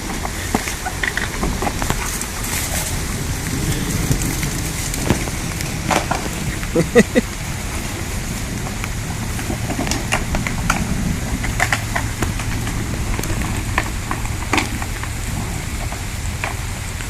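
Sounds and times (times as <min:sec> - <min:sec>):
rain drops hitting: 0:00.0 - 0:17.0
steady low rumble: 0:00.0 - 0:17.0.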